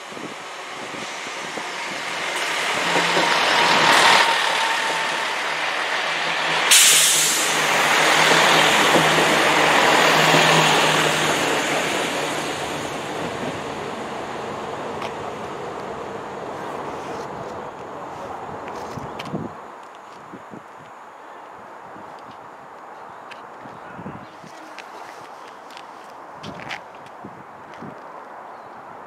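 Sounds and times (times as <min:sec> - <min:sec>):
diesel trains passing: 0:00.0 - 0:20.6
loud burst of hissing: 0:06.6 - 0:08.7.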